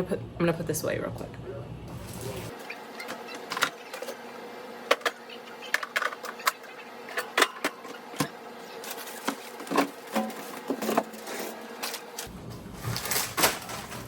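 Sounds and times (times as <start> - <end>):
faint steady hum: 0.0 - 14.0
packages clicking and knocking: 11.8 - 14.0.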